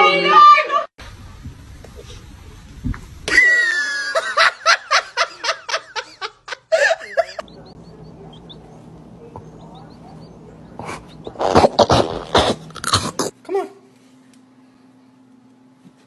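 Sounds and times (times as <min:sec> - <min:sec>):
faint steady hum: 0:01.0 - 0:16.0
person laughing hard: 0:03.3 - 0:07.7.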